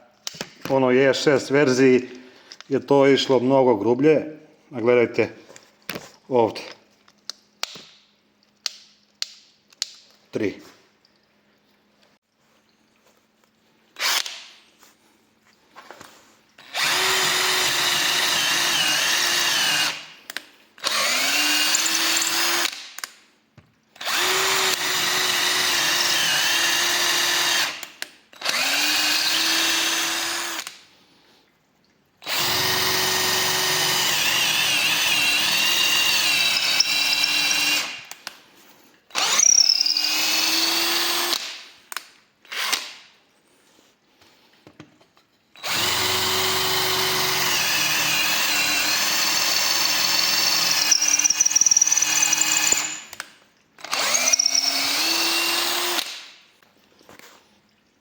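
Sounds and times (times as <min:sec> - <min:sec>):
cordless drill motor whining: 0:16.6 - 0:20.0, 0:20.8 - 0:22.8, 0:24.0 - 0:30.7, 0:32.2 - 0:38.0, 0:39.1 - 0:41.4, 0:45.6 - 0:53.2, 0:53.8 - 0:56.1
drill click: 0:16.6 - 0:23.1, 0:24.0 - 0:30.8, 0:32.2 - 0:38.4, 0:45.6 - 0:56.3.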